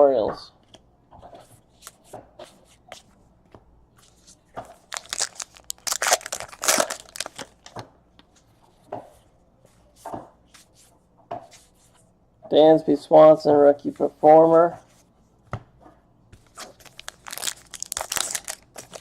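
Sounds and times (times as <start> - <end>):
cards shuffling: 4.0 - 7.7, 16.4 - 19.0
wrapper tearing and crinkling: 4.9 - 7.7, 16.6 - 19.0.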